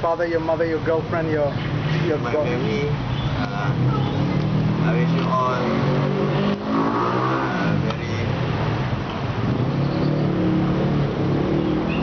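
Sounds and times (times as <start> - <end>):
vehicles passing close by: 0.0 - 12.0.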